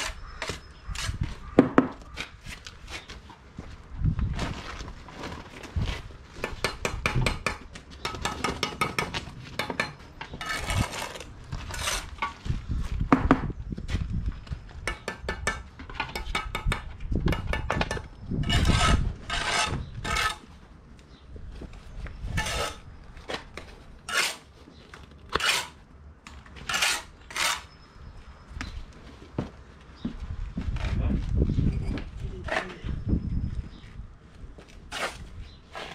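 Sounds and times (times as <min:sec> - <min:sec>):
trowel scraping on mortar: 0:10.3 - 0:12.4, 0:18.4 - 0:20.5, 0:22.3 - 0:22.9, 0:24.0 - 0:24.6, 0:25.3 - 0:25.8, 0:26.6 - 0:27.8, 0:34.8 - 0:35.9.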